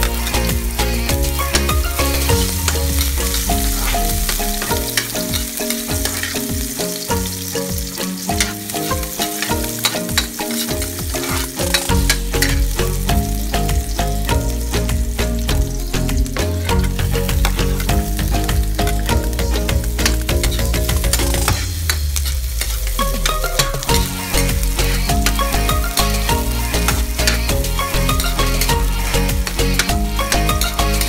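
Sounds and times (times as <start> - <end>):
spatula scraping a wok: 0.0 - 13.0, 19.6 - 31.0
onion sizzling in hot oil: 0.0 - 31.0.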